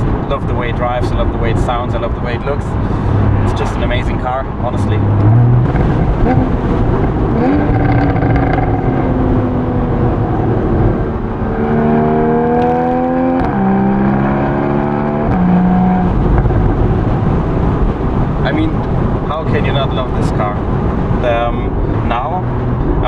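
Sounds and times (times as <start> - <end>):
car exhaust accelerating: 0.0 - 23.0.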